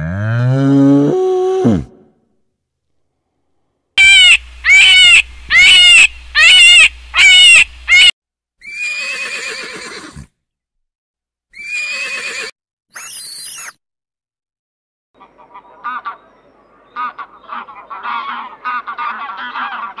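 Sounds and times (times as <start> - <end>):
horses whinnying: 8.6 - 10.3, 11.6 - 12.5.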